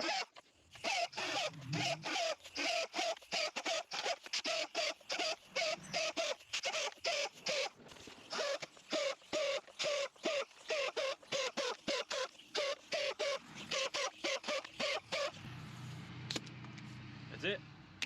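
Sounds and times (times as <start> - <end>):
die grinder sharpening chain: 0.0 - 15.5.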